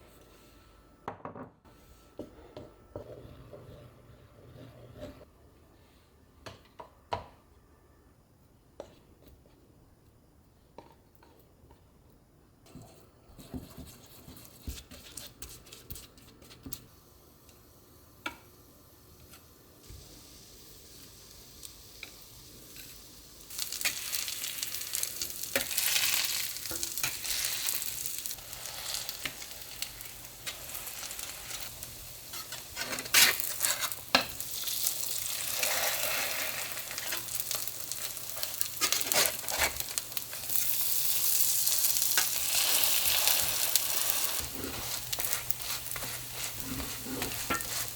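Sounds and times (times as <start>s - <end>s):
stirring scrapes and taps: 2.2s - 5.3s, 12.7s - 16.9s, 25.4s - 40.5s, 42.1s - 47.9s
food sizzling in a pan: 17.7s - 47.9s.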